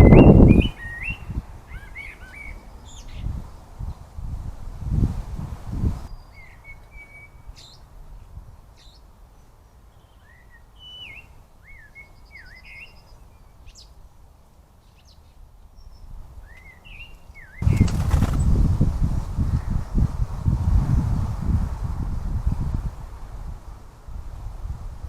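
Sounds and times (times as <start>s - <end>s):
small birds chirping: 14.8s - 18.7s
low rumbling thuds: 17.6s - 19.7s.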